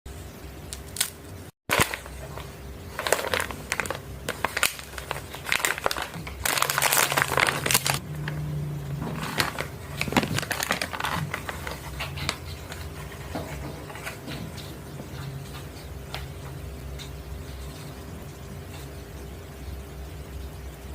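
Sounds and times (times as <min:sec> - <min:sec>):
plastic wrapper crinkling: 0:00.8 - 0:08.4, 0:09.0 - 0:14.7.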